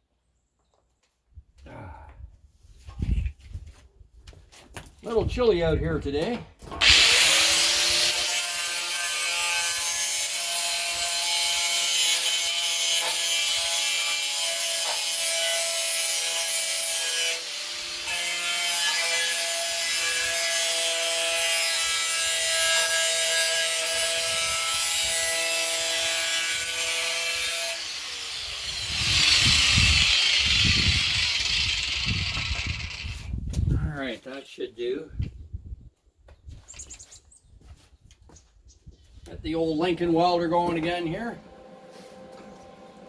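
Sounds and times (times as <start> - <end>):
angle grinder grinding steel: 6.8 - 33.3.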